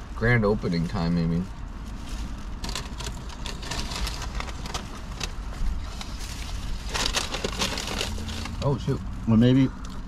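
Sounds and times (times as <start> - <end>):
food packaging crinkling: 1.6 - 8.7.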